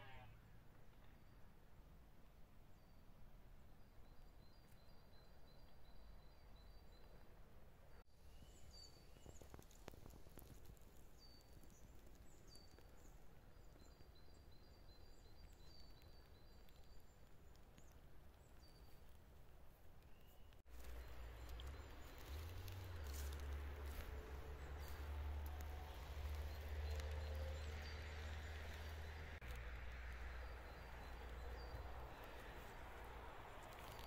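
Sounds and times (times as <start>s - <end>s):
distant bird chirps: 20.0s - 34.0s.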